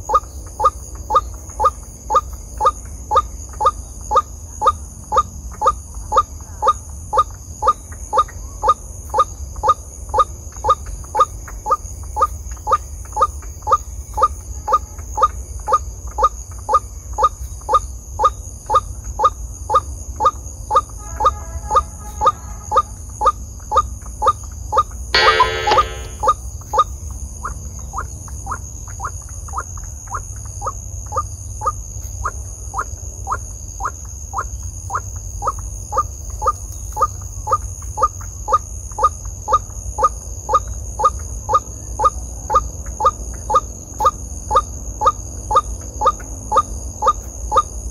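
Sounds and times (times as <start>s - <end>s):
high insect-like whine: 21.2s - 27.9s
harsh bird call: 25.2s - 26.2s
waterhen call repeating: 25.2s - 26.2s.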